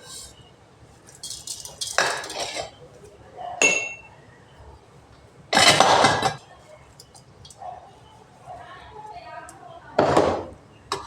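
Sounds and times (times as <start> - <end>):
dishes and utensils clattering: 1.1 - 2.8, 5.5 - 6.4
ringing clink of dish: 3.6 - 4.1.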